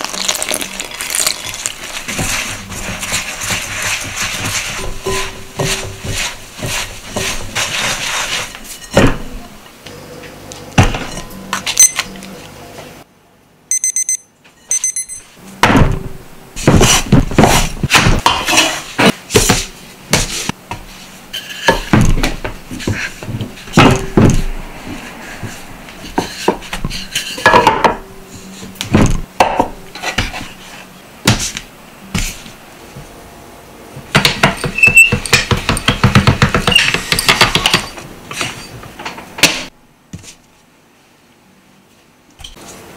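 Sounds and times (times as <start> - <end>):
hands squeezing dough in glass bowl: 0.0 - 4.8
patting dough on metal tray: 1.8 - 9.3
short high beeps: 11.8 - 12.0, 13.7 - 15.2.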